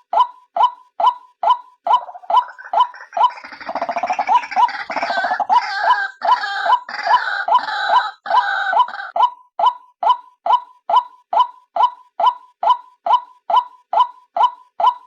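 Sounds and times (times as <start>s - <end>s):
waterhen calling: 1.9s - 9.2s.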